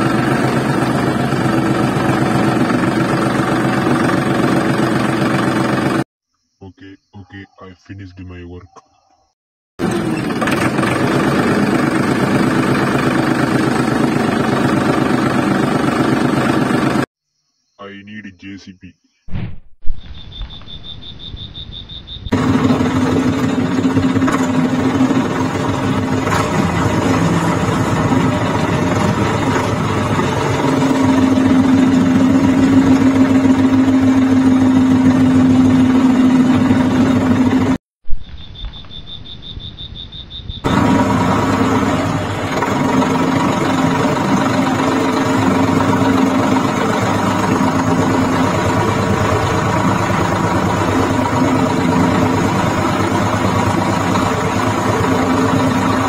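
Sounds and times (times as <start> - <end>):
engine running: 0.0 - 6.1, 9.8 - 17.1, 22.3 - 37.8, 40.6 - 56.0.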